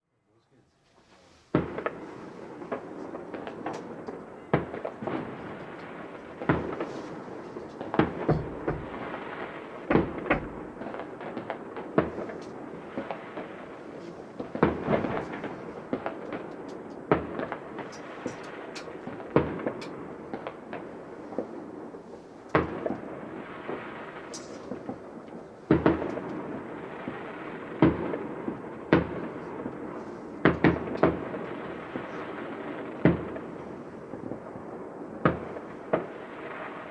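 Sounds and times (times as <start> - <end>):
din of smaller firework bursts: 1.4 - 36.9
fireworks bursting with echoing bangs: 1.5 - 36.9.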